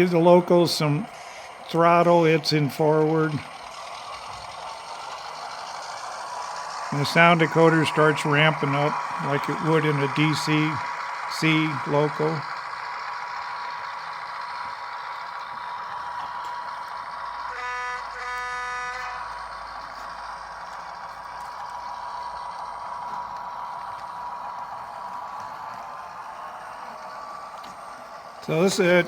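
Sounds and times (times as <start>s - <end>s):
diesel locomotive engine running: 0.0s - 29.0s
locomotive horn blast: 17.5s - 20.0s.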